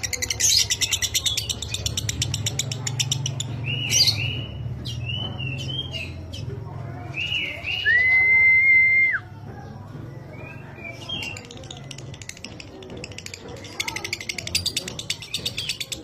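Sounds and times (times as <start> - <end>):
bird whistling: 7.2 - 9.2.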